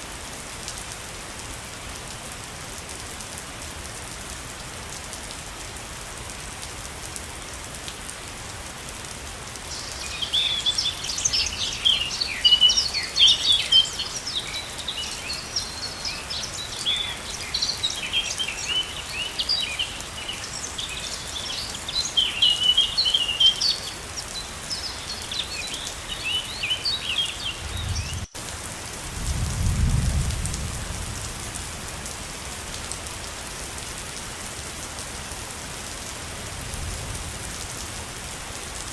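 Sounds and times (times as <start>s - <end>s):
falling water rushing: 0.0s - 29.1s
songbirds chirping: 9.6s - 28.4s.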